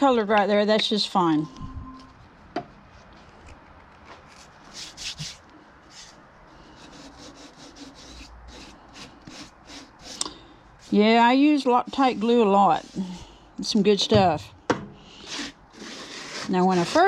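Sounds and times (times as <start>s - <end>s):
hand rubbing wood: 4.2s - 13.4s, 15.3s - 17.0s.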